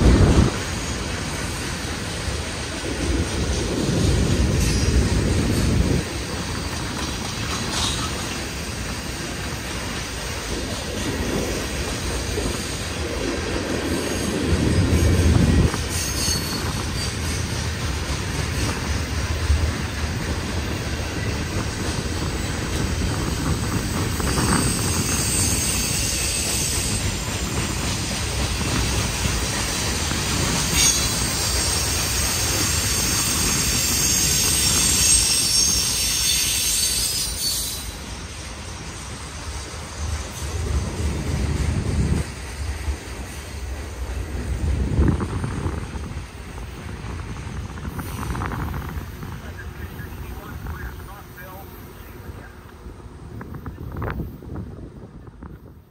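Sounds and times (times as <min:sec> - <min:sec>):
freight train wheels rumbling and clacking: 0:00.0 - 0:55.9
high-pitched wheel squeal: 0:15.8 - 0:17.5, 0:24.2 - 0:27.1, 0:30.7 - 0:38.0.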